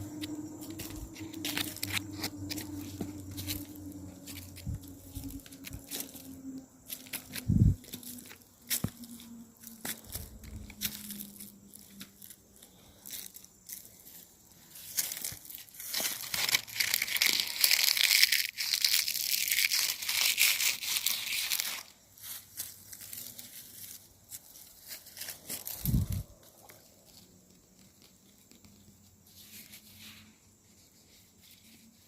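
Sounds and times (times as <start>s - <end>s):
footsteps crunching through dry leaves: 0.0s - 27.2s
twigs snapping: 0.1s - 6.3s.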